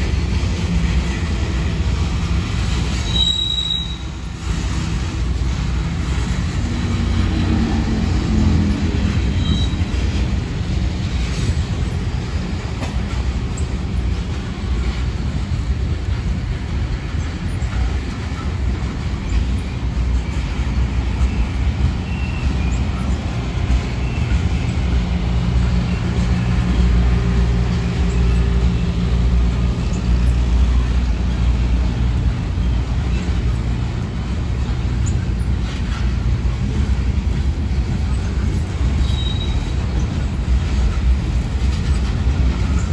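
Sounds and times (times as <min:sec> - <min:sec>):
train wheels rumbling on rail: 0:00.0 - 0:42.9
wheels squealing: 0:02.7 - 0:05.0, 0:06.6 - 0:10.3, 0:19.2 - 0:36.8, 0:38.0 - 0:42.9.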